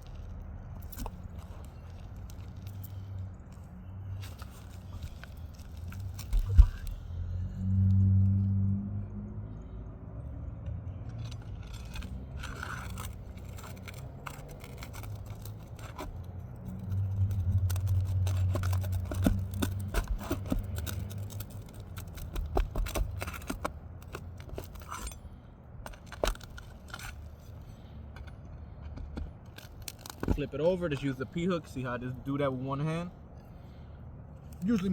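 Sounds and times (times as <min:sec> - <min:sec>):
pry bar scraping roof shingles: 0:11.1 - 0:32.4.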